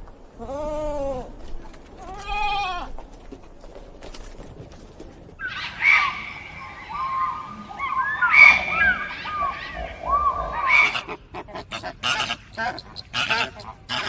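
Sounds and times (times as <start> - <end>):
flock of fowl calling: 5.4 - 14.0.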